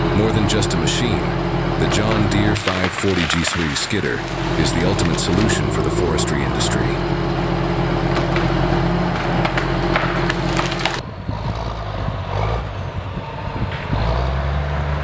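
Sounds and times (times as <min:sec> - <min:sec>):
heavy machine engine under load: 0:00.0 - 0:15.0
wood cracking and splintering: 0:00.2 - 0:11.0.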